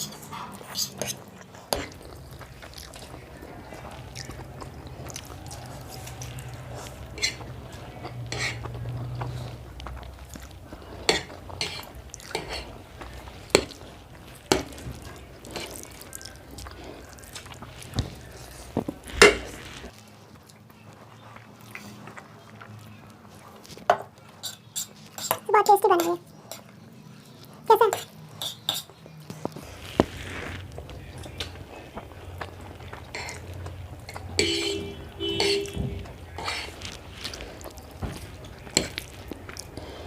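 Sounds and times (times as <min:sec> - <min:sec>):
cutlery clinking on plates: 0:00.0 - 0:02.0, 0:05.5 - 0:08.8, 0:11.0 - 0:12.7, 0:13.3 - 0:13.8, 0:14.4 - 0:16.0, 0:28.0 - 0:29.0, 0:33.0 - 0:37.3, 0:37.9 - 0:39.2.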